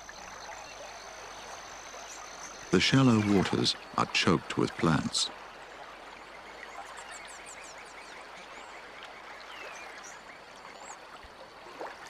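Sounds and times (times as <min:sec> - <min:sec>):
steady hiss: 0:01.5 - 0:05.3.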